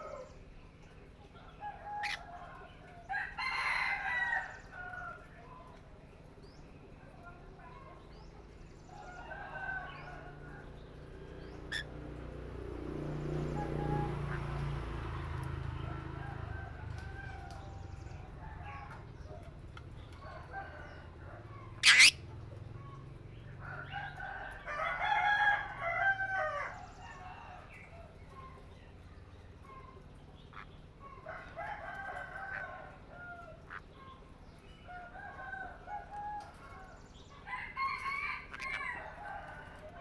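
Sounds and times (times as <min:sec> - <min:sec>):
birds calling: 0:00.0 - 0:03.6, 0:07.7 - 0:12.1, 0:17.3 - 0:24.4.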